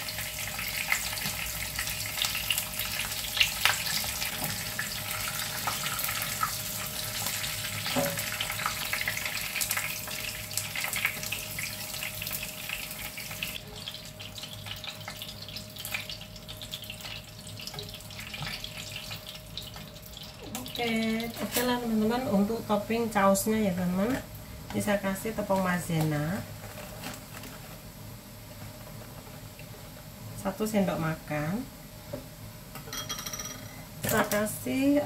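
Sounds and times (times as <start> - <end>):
onions sizzling in hot oil: 0.0 - 26.6.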